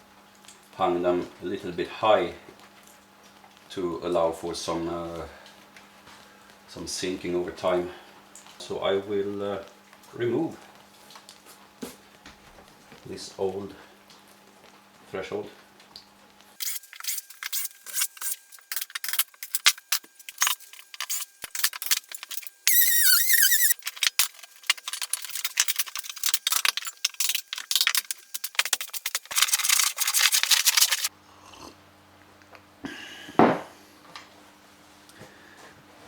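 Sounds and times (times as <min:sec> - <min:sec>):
high wavering squeal: 0:16.6 - 0:28.6
wood creaking and scraping: 0:16.6 - 0:31.1.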